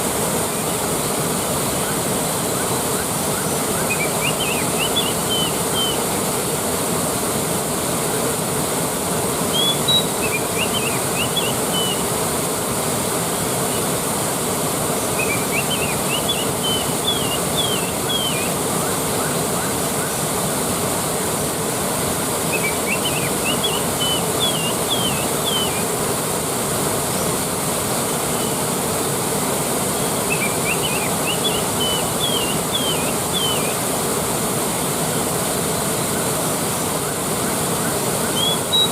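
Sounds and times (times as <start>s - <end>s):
waterfall rushing: 0.0s - 38.9s
bird chirping: 3.8s - 6.0s, 9.5s - 12.0s, 15.2s - 18.6s, 22.5s - 25.8s, 30.3s - 33.8s, 38.2s - 38.9s.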